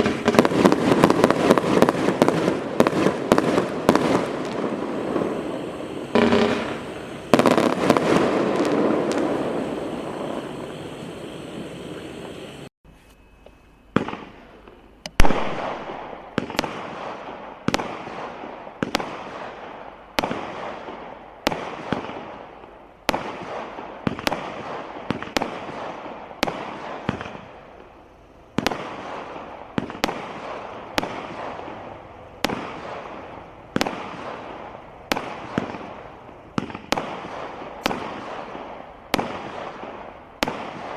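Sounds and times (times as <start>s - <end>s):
firework bangs with echo: 0.0s - 12.7s, 15.2s - 27.6s, 28.6s - 40.9s
firework crackling: 0.0s - 12.7s, 28.6s - 40.9s.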